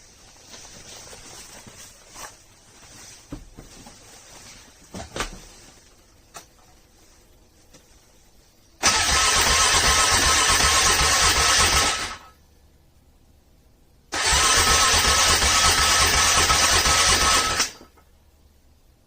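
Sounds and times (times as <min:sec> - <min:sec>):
engine cranking: 0:08.8 - 0:12.2, 0:14.1 - 0:17.8.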